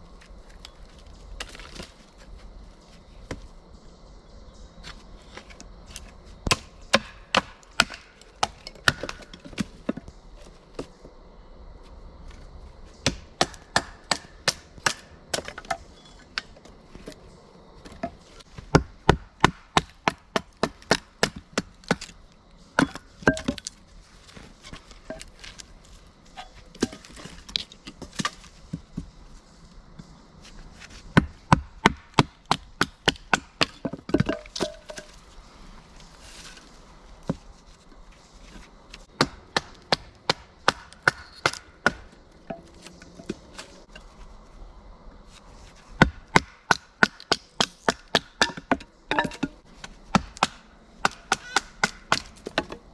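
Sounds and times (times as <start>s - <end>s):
axe chopping firewood: 6.4s - 10.1s, 13.0s - 17.2s, 17.8s - 22.2s, 22.8s - 23.7s, 26.4s - 29.1s, 30.8s - 35.2s, 39.0s - 44.1s, 45.9s - 52.9s.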